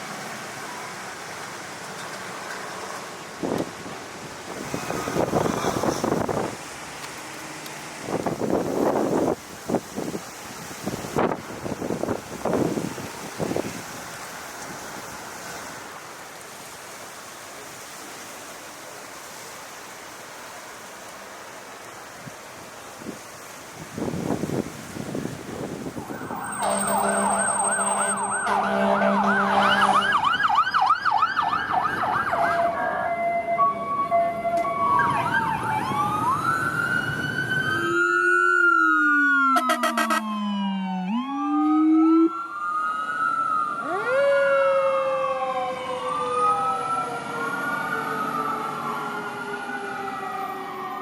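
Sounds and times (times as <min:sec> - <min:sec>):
fire truck sirens wailing: 0:25.9 - 0:51.0.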